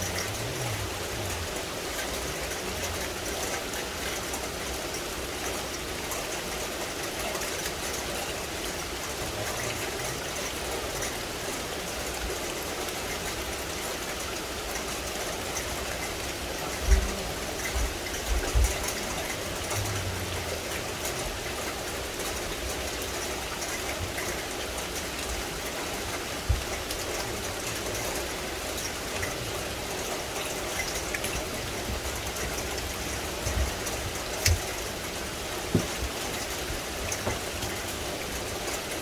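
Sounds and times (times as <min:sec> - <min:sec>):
rain falling on vegetation: 0:00.0 - 0:39.0
dull low thumps: 0:16.8 - 0:22.3.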